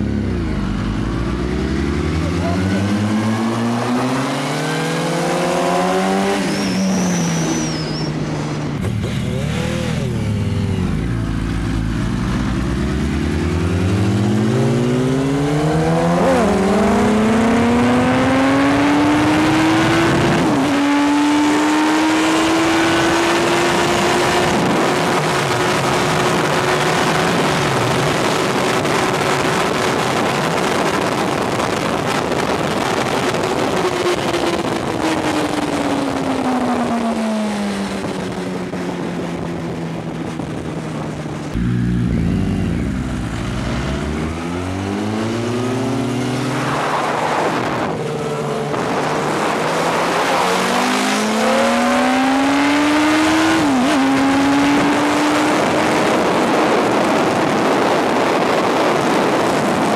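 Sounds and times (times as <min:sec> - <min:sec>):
motorcycle engine accelerating: 0:00.0 - 0:59.9
wind rush on microphone: 0:13.5 - 0:59.9.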